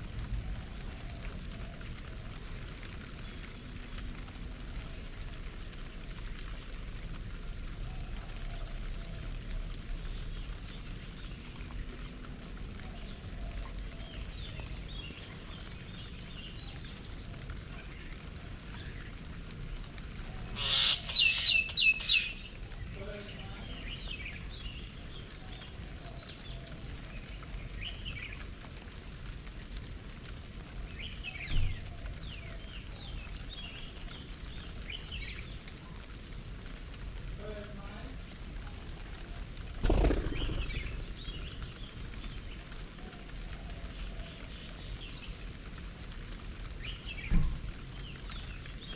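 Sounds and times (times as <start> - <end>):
garden birds chirping: 0.0 - 48.9
bird sharp quick notes: 39.8 - 41.6.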